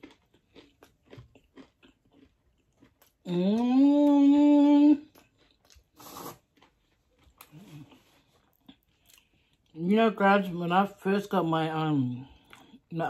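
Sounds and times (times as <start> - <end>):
wet chewing clicks: 0.0 - 3.3
breathy puff: 6.0 - 6.4.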